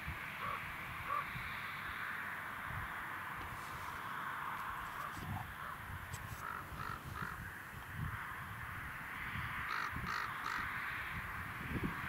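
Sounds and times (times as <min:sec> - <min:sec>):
bird calling: 0:00.4 - 0:01.4, 0:04.9 - 0:07.5, 0:09.7 - 0:10.7.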